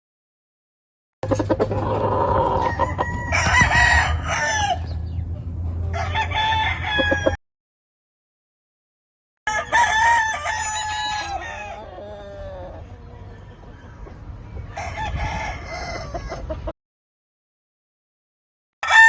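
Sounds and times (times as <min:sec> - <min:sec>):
rooster clucking: 0:01.2 - 0:07.4, 0:09.5 - 0:16.7
rooster crowing: 0:01.8 - 0:05.2, 0:05.9 - 0:07.4, 0:09.5 - 0:16.6.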